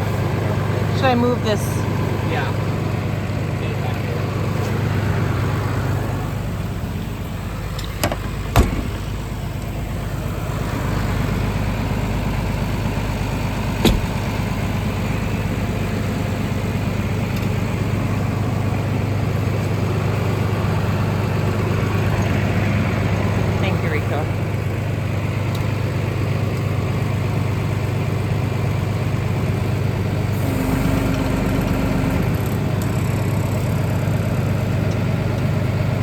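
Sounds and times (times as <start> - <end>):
engine idling: 0.0 - 36.0
sharp clicks or knocks: 13.8 - 14.2.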